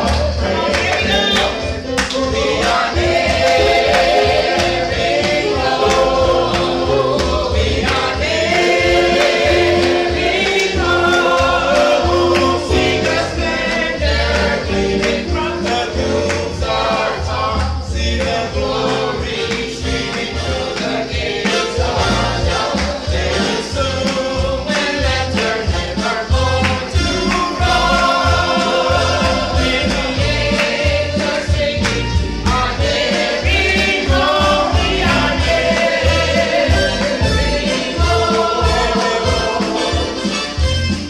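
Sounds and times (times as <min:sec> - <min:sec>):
band playing: 0:00.0 - 0:41.0
choir singing gospel: 0:00.0 - 0:41.0
drums: 0:18.6 - 0:41.0
bass line: 0:21.8 - 0:41.0.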